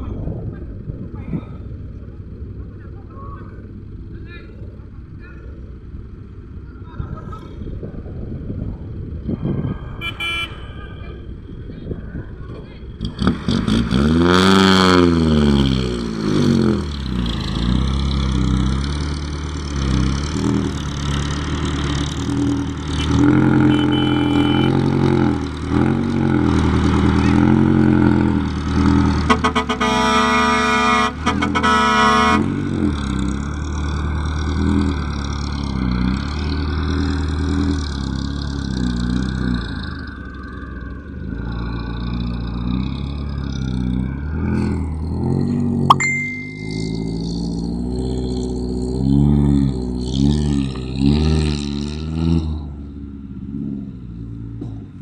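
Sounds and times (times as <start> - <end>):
diesel truck engine under load: 0.0 - 55.0
truck horn: 9.6 - 11.3, 22.9 - 25.4, 27.1 - 27.8, 28.9 - 32.9, 46.1 - 47.6.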